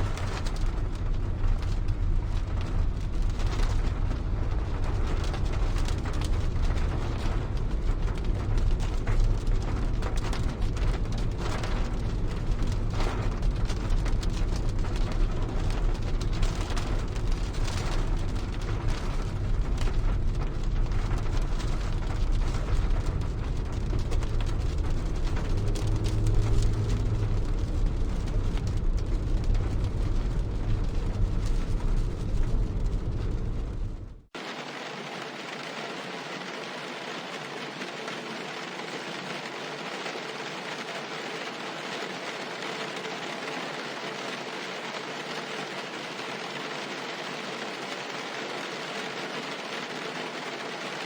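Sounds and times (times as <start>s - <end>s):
deep steady rumble: 0.0s - 34.3s
heavy rain on car roof: 0.0s - 51.0s.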